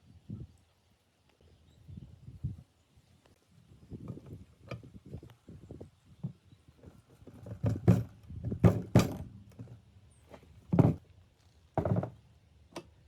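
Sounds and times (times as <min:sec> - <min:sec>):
hard objects knocking and clunking: 0:07.3 - 0:09.7, 0:10.7 - 0:11.0, 0:11.8 - 0:12.2.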